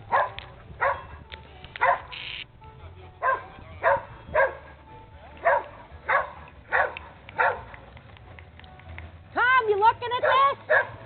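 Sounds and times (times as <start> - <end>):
dog barking: 0.1 - 1.1, 1.8 - 2.1, 3.2 - 4.7, 5.4 - 7.7, 10.2 - 11.0.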